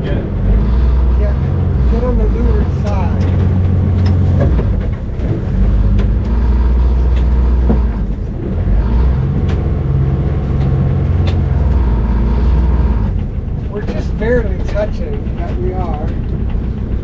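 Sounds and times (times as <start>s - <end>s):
boat engine droning: 0.0s - 17.0s
sharp clicks and knocks: 1.8s - 12.0s, 13.0s - 17.0s.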